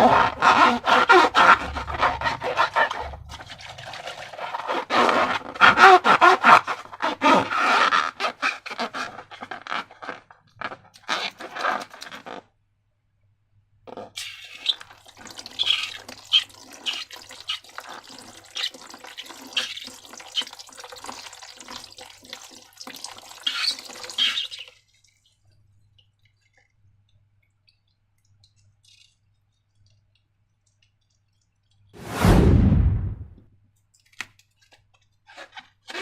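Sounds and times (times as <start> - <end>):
slime squelching and dripping: 14.2 - 31.9.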